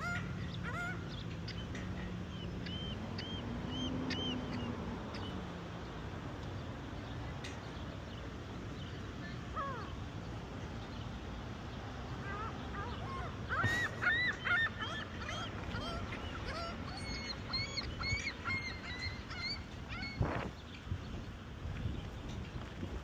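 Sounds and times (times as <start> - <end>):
gulls calling: 0.0 - 6.0, 8.8 - 10.9, 11.8 - 20.9.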